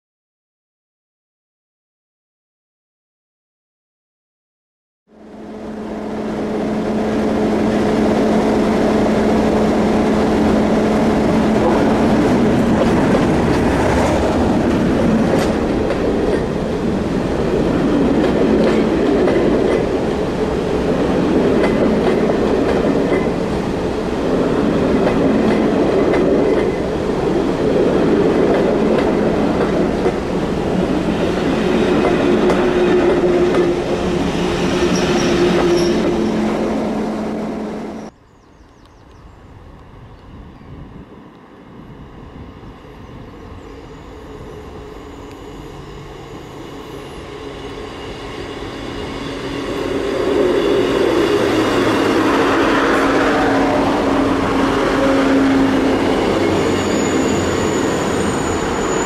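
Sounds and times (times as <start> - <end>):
diesel locomotive engine hum: 5.1 - 59.0
train wheels rumbling and clattering: 7.0 - 38.1.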